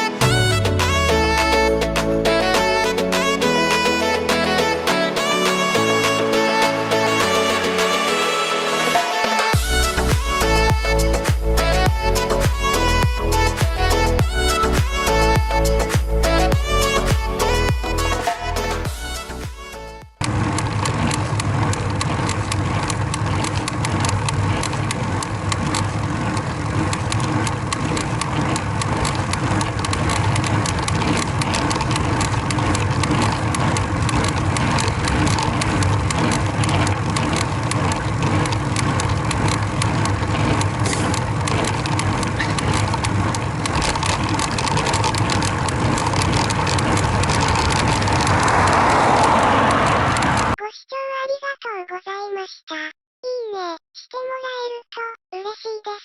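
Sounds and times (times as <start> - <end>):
drivetrain creaking clicks: 20.2 - 50.6.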